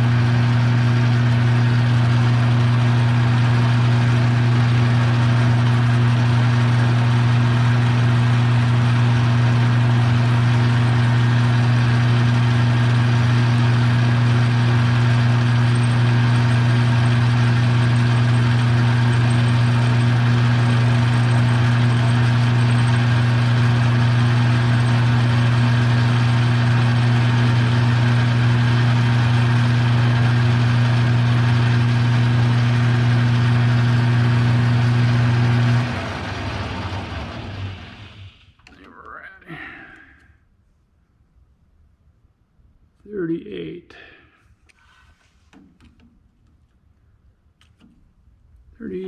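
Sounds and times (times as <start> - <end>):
lathe motor humming: 0.0 - 38.7.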